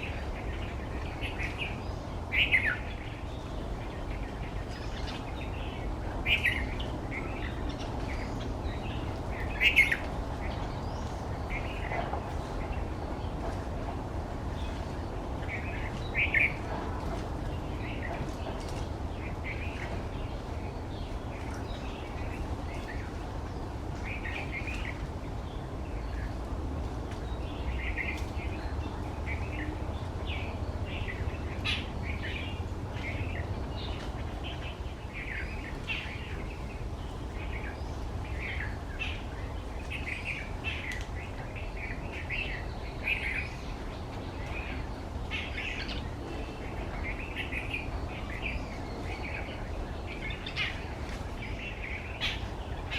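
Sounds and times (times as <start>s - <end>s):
birds chirping: 0.0s - 26.4s.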